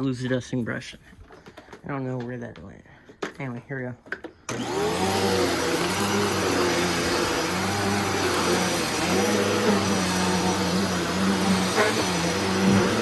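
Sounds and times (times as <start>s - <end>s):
vacuum cleaner running: 4.5s - 13.0s.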